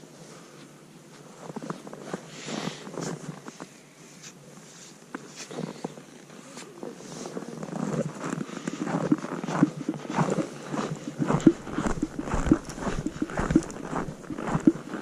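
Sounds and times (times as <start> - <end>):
footsteps in snow: 9.0 - 15.0.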